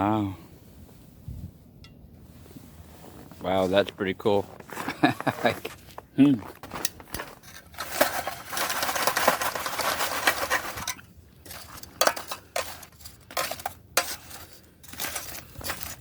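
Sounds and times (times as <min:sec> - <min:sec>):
metal and rock rattling in a pan: 0:06.7 - 0:16.0.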